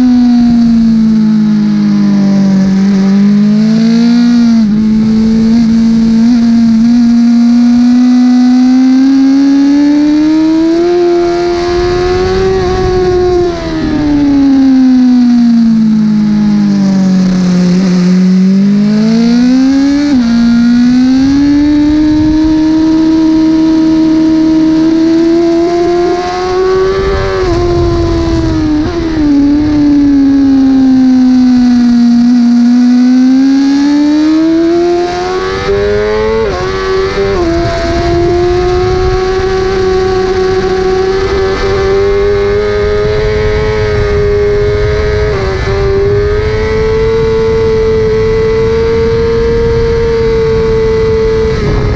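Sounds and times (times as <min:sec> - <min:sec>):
motorcycle engine running hard: 0:00.0 - 0:51.9
wind rushing: 0:10.1 - 0:31.4, 0:34.2 - 0:51.9.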